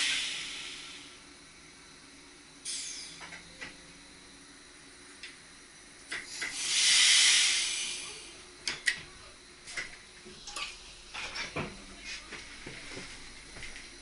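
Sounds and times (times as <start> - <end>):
compressed air venting: 0.0 - 1.2, 6.1 - 8.4.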